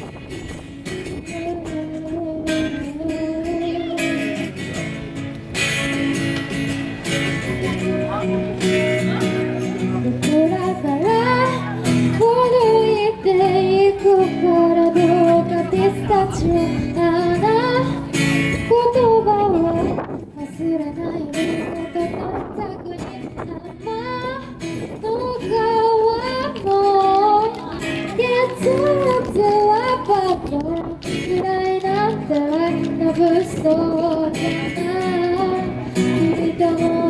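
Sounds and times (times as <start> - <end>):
guitar accompaniment: 0.0 - 37.0
woman singing pop ballad: 10.0 - 37.0.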